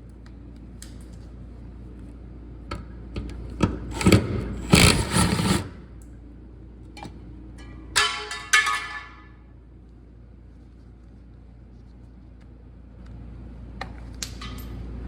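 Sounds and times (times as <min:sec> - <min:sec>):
power wrench rattling bursts: 0:03.9 - 0:05.7.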